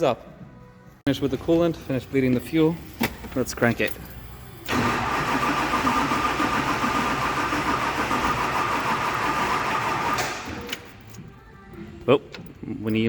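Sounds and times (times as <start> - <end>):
starter motor cranking engine: 4.7 - 10.7.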